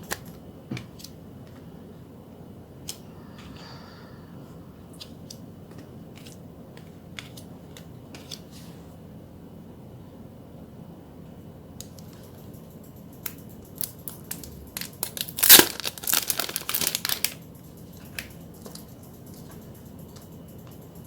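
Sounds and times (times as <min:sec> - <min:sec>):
packaging crinkling: 0:14.3 - 0:17.4
packaging ripping: 0:14.8 - 0:17.3.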